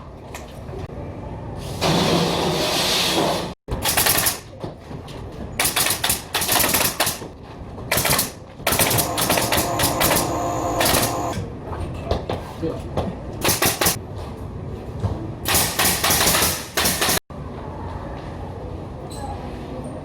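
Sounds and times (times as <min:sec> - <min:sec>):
pneumatic stapler firing: 0:03.7 - 0:04.5, 0:05.6 - 0:07.3, 0:07.9 - 0:11.4, 0:13.4 - 0:14.0, 0:15.5 - 0:17.2.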